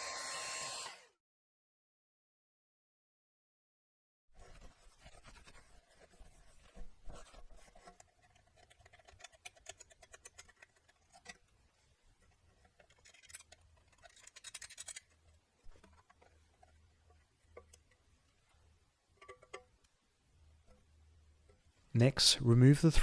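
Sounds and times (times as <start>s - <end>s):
tools scratching and clicking on metal: 7.6s - 18.0s.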